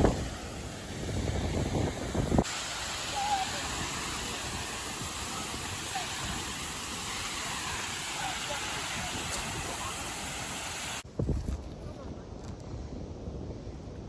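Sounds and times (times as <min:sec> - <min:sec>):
steady hiss: 0:00.0 - 0:11.0
wind buffeting microphone: 0:00.0 - 0:14.0.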